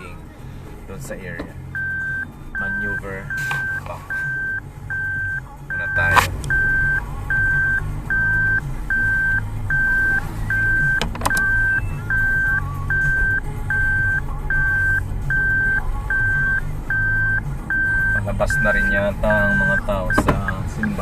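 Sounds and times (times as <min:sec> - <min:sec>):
reversing warning beeps: 0:01.8 - 0:21.0
sharp clicks: 0:10.9 - 0:11.6.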